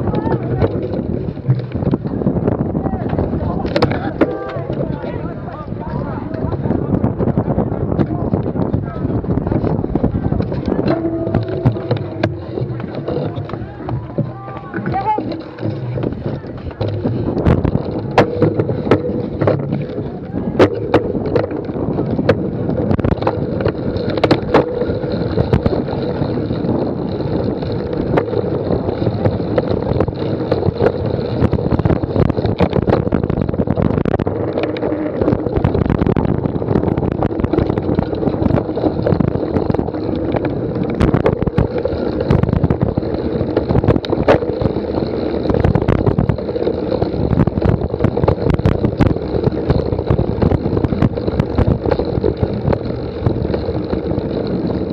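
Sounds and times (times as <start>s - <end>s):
small rattles and knocks: 0.0s - 54.9s
wind rushing on microphone: 0.0s - 54.9s.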